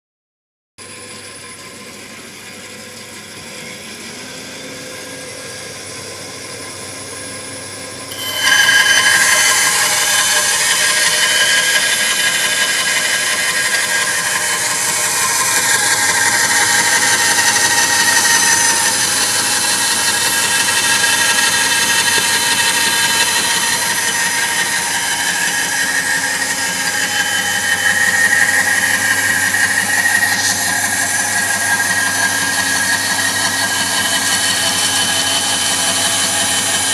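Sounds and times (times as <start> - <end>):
saw high whine and hiss: 8.1 - 36.9
small electric motor humming: 8.1 - 36.9.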